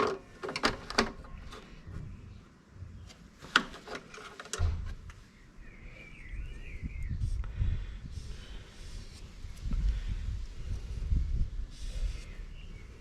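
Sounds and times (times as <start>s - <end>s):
light clicks and knocks of parts: 3.1s - 5.2s.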